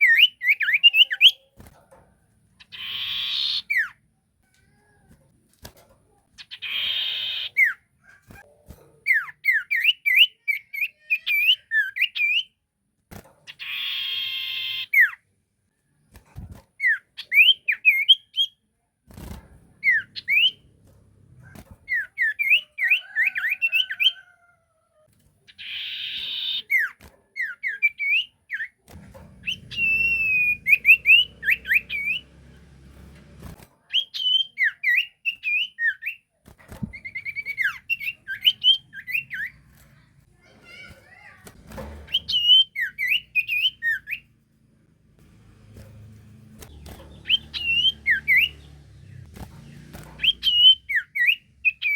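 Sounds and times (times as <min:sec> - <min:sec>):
bird whistling song: 0:00.0 - 0:01.4, 0:09.1 - 0:12.5, 0:16.8 - 0:18.6, 0:19.8 - 0:20.6, 0:21.9 - 0:24.2, 0:29.4 - 0:32.3, 0:33.9 - 0:36.3, 0:36.9 - 0:39.6, 0:42.1 - 0:44.2, 0:47.2 - 0:48.6, 0:50.2 - 0:51.9.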